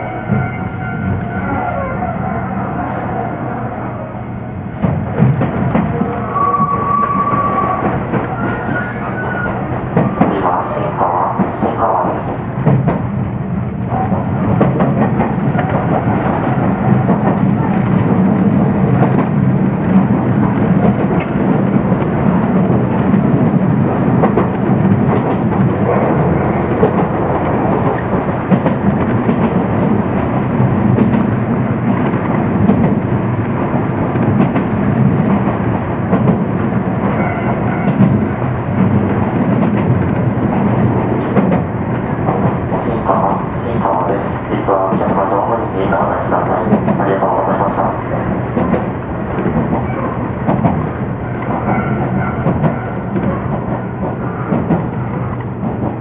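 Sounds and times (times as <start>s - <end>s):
train motors and wheels rumbling: 0.0s - 56.0s
track clicks: 38.8s - 53.9s.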